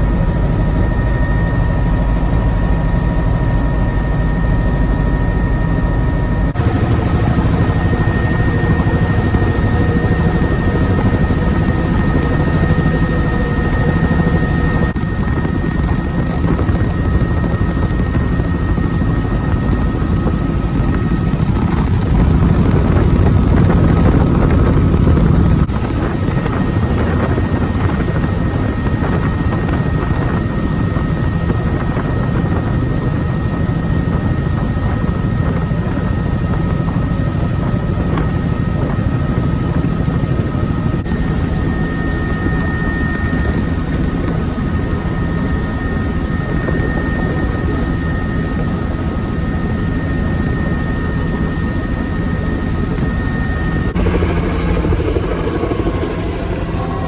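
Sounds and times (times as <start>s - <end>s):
high whine: 0.0s - 24.2s, 52.9s - 57.0s
helicopter rotor and engine: 0.0s - 57.0s.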